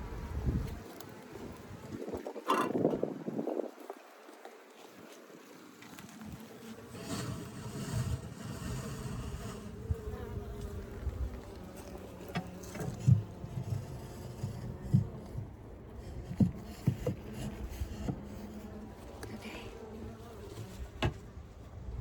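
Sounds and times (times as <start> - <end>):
low rumble on microphone: 0.0 - 0.8, 12.6 - 19.6
honeybees buzzing: 6.1 - 21.9.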